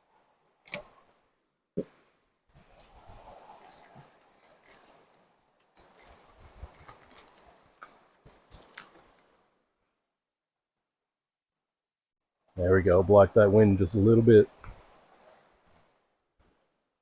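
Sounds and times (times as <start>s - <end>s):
rustling handling noise: 2.5s - 9.5s.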